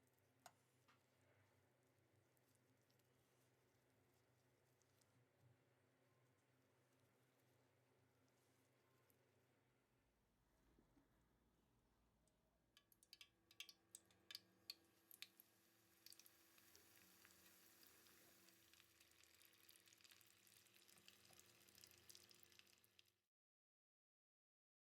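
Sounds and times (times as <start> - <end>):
food frying in hot oil: 12.8 - 23.2.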